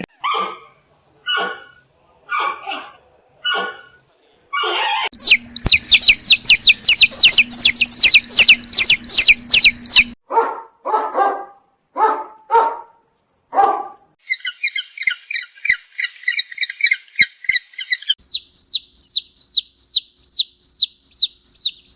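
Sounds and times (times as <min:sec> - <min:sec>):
animal barks: 0:00.0 - 0:05.1, 0:10.3 - 0:14.1
high chirps: 0:05.1 - 0:10.2, 0:14.2 - 0:21.9
bird falling chirp: 0:05.2 - 0:10.2
rapid buzzing trill: 0:05.2 - 0:10.2.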